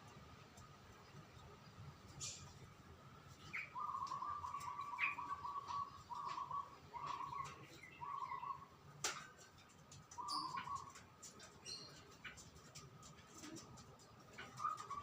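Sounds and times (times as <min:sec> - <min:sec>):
songbird rattling trill: 0:03.5 - 0:08.7, 0:09.5 - 0:15.0.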